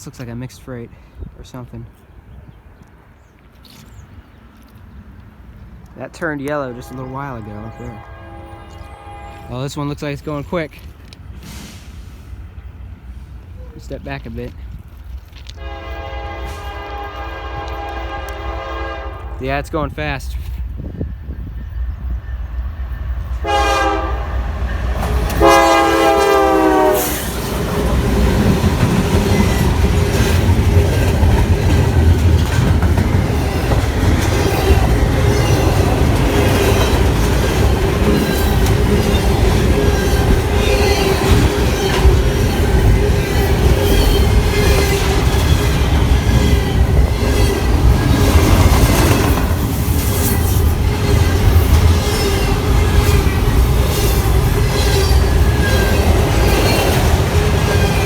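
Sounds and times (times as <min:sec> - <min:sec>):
train passing with heavy rumble: 0:04.0 - 0:58.0
train horn blasts: 0:06.5 - 0:09.7, 0:15.5 - 0:19.4, 0:23.4 - 0:27.4
wheels whining: 0:21.2 - 0:58.0
wheels clickety-clack: 0:27.2 - 0:58.0.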